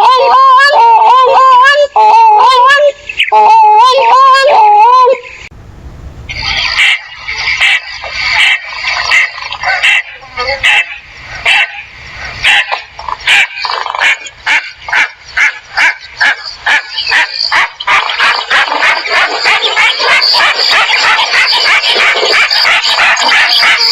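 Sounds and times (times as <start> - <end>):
bird calling in harsh notes: 0.0 - 7.8.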